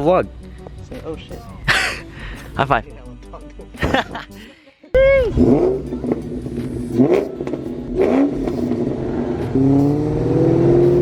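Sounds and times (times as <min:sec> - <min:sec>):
car engine revving: 0:05.2 - 0:11.0.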